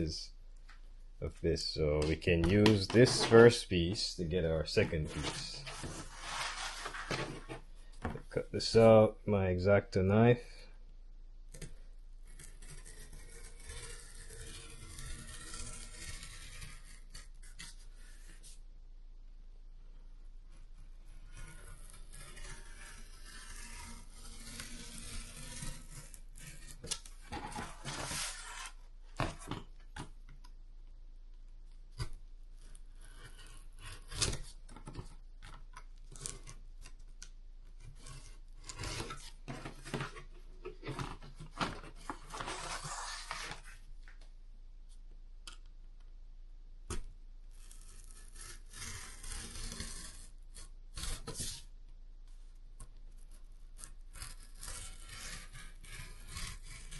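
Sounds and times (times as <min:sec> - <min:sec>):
knife cutting cardboard: 0:02.0 - 0:04.0, 0:04.8 - 0:07.7, 0:11.5 - 0:18.6, 0:20.6 - 0:30.2, 0:31.9 - 0:43.8, 0:46.9 - 0:51.7, 0:52.9 - 0:56.9.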